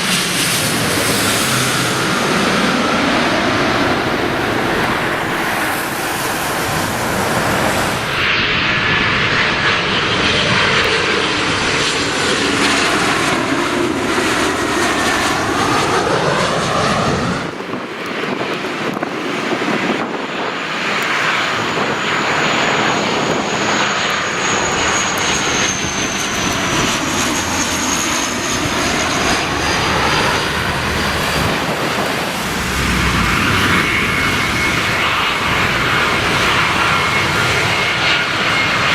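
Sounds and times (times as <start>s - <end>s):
jet engines roaring: 0.0s - 38.9s
high engine whine: 21.3s - 38.9s.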